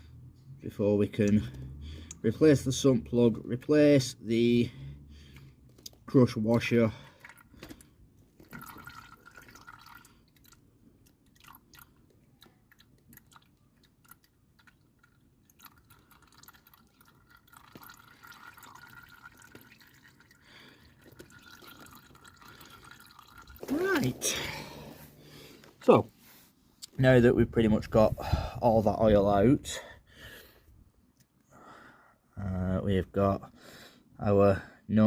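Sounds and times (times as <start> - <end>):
oil dripping: 0.0 - 25.9.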